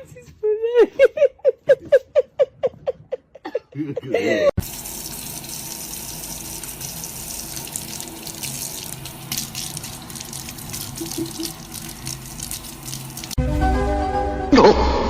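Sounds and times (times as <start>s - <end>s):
water running: 4.6s - 13.4s.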